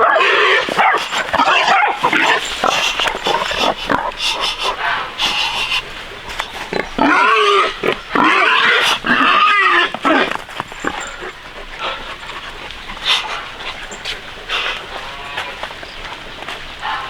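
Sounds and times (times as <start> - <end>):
piglets squealing: 0.0 - 12.0
piglets grunting: 0.0 - 17.0
rustling: 0.2 - 17.0.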